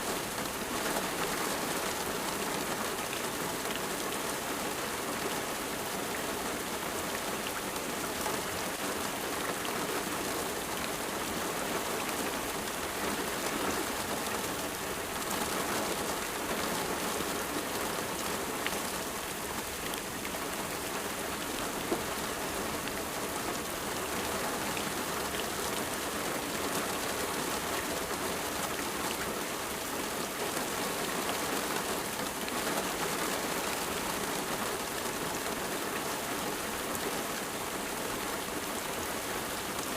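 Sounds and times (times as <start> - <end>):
rain hissing on surfaces: 0.0 - 39.9.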